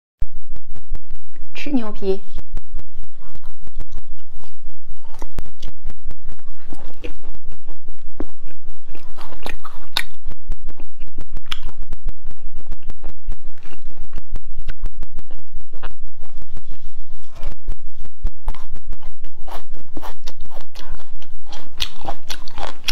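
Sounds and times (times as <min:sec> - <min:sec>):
close chewing and biting: 0:02.8 - 0:22.9
wet mouth clicks: 0:08.2 - 0:11.8, 0:18.5 - 0:22.9.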